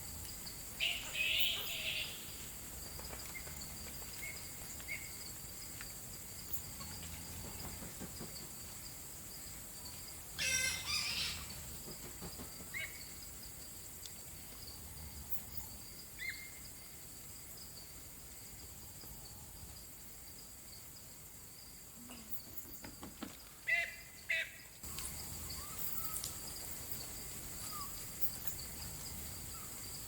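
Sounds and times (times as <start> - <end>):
insect drone: 0.0 - 30.0
bird call: 0.8 - 2.3.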